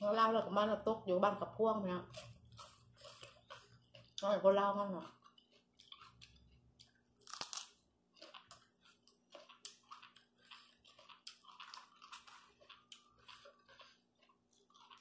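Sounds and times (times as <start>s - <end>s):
chewing raw greens: 2.0s - 15.0s.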